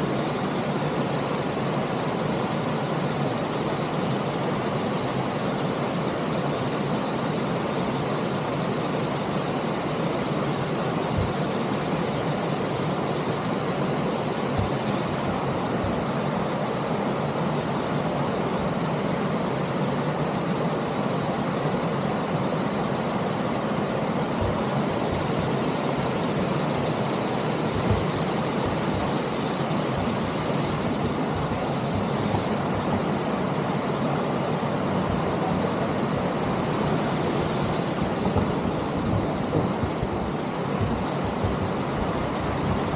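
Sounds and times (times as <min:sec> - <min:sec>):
wind on microphone: 0:23.3 - 0:42.9
bike tyres rolling on dirt: 0:36.3 - 0:42.9
bike knocking over bumps: 0:38.2 - 0:42.9.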